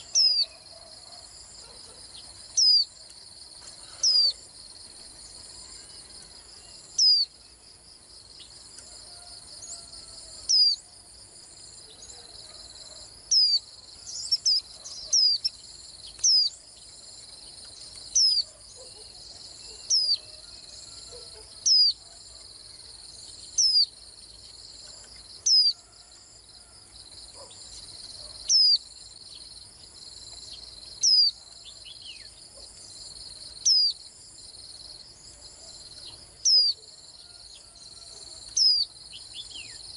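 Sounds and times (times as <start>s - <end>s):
bird high sharp calls: 0.0s - 1.0s, 3.8s - 4.4s
insect chorus: 0.0s - 39.9s.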